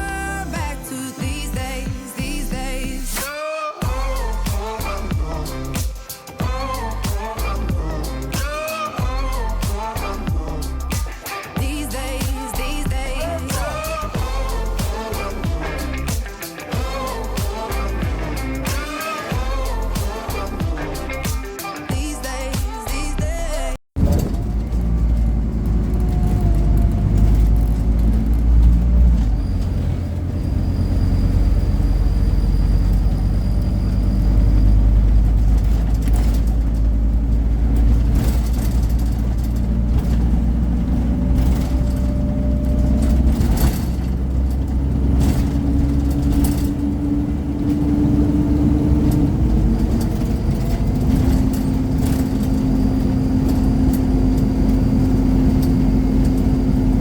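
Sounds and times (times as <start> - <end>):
bus diesel engine rumble: 0.0 - 3.2, 3.8 - 57.0
knocks and rattles: 34.3 - 57.0.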